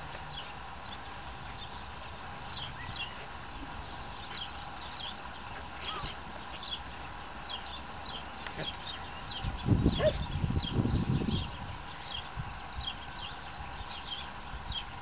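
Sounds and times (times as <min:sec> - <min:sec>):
faint steady hum: 0:00.0 - 0:15.0
small birds chirping: 0:00.0 - 0:15.0.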